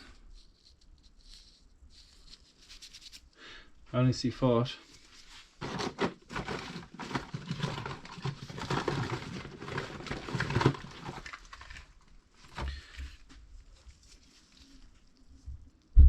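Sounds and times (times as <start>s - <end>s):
handling rustling and clicks: 4.9s - 15.9s.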